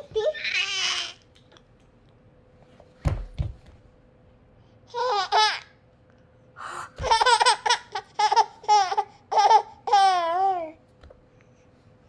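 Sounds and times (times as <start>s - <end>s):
baby laughing: 4.9s - 5.8s, 7.0s - 10.7s.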